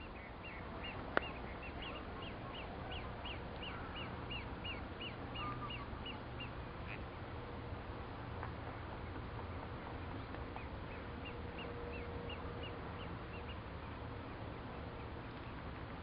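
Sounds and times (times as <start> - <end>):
background hiss and hum: 0.0 - 16.0.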